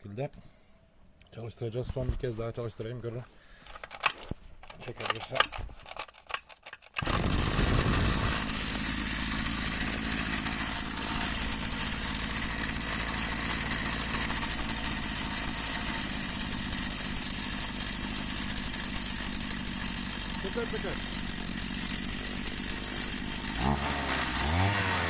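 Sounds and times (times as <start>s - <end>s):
pull starter: 3.6s - 25.0s
brushcutter engine idling: 7.0s - 25.0s.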